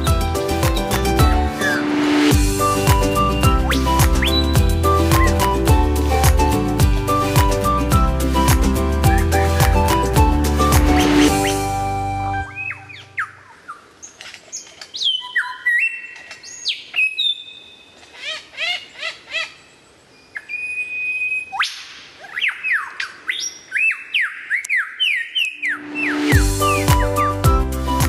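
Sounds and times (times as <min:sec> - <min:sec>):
bird whistling calls: 0:01.5 - 0:05.6, 0:12.4 - 0:13.8, 0:15.0 - 0:19.5, 0:20.2 - 0:28.0.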